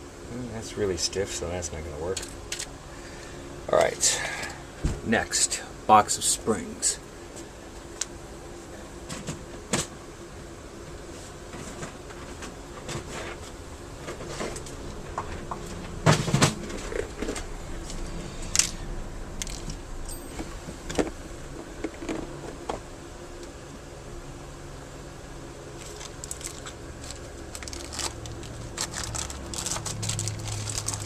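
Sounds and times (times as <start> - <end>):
faint steady hum: 0.0 - 31.0
metal parts clicking and rattling: 19.4 - 20.5, 25.8 - 31.0.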